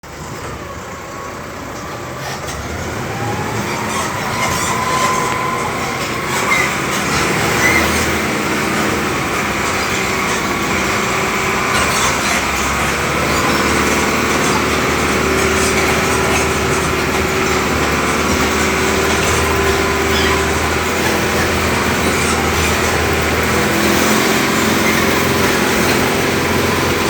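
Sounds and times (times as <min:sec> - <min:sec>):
vehicle engine: 0:00.0 - 0:27.0
vehicle rattling and jolting: 0:00.0 - 0:27.0
brief squeaks: 0:02.2 - 0:09.0.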